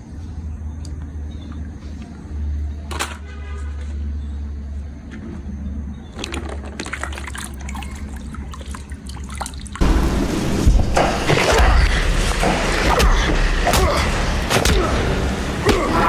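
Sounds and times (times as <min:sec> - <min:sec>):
rushing splashing water: 0:06.2 - 0:16.0
loud surge of noise: 0:09.8 - 0:16.0
low rumble: 0:09.8 - 0:16.0.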